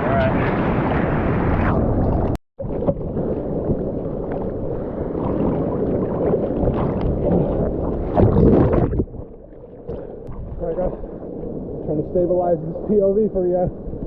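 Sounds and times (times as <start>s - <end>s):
muffled seawater sloshing: 0.0s - 14.0s
rush of water: 0.0s - 14.0s.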